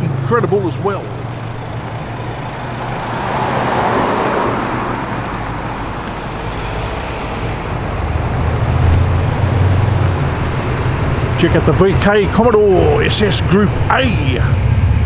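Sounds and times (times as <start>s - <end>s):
approaching car engine rumble: 0.0s - 15.0s
car exhaust rumbling: 0.0s - 15.0s.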